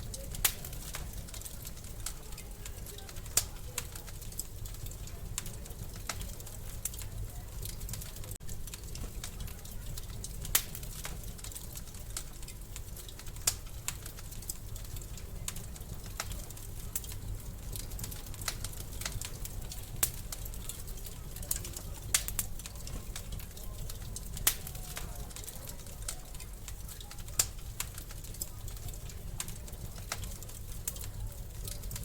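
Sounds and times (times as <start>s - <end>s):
wood fire crackling: 0.0s - 32.0s.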